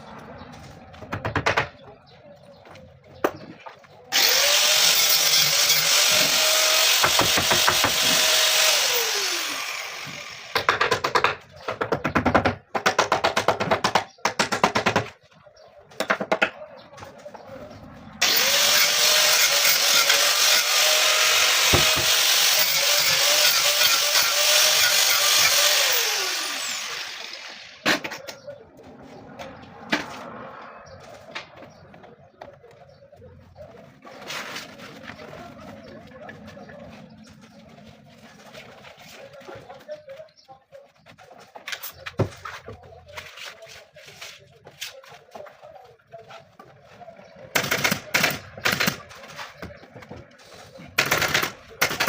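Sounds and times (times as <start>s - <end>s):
electric power tool motor: 4.1s - 10.6s, 18.2s - 27.8s.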